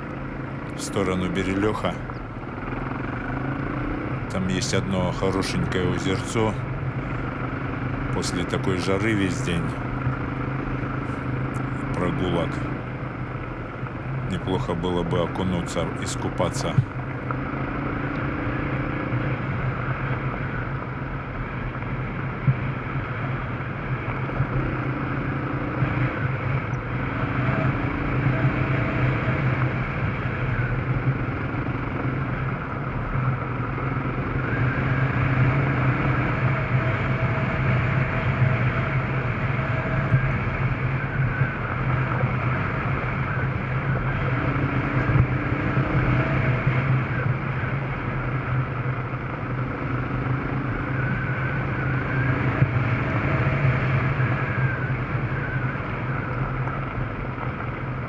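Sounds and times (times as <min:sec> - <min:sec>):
higher engine tone: 0:00.0 - 0:19.3, 0:33.3 - 0:57.3
motorcycle engine running: 0:02.1 - 0:04.3, 0:06.6 - 0:08.1.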